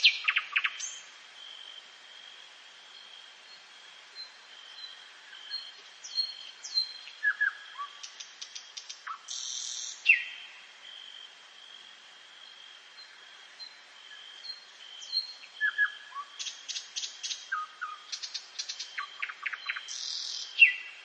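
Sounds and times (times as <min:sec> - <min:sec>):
birds calling and singing: 0:00.0 - 0:01.1, 0:04.2 - 0:10.5, 0:14.4 - 0:21.0.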